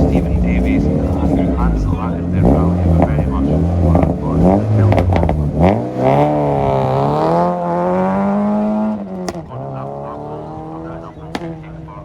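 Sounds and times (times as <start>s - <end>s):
exhaust pops: 0.0s - 12.0s
rally car engine accelerating: 0.0s - 12.0s
sharp crack: 8.9s - 9.6s, 11.1s - 11.7s.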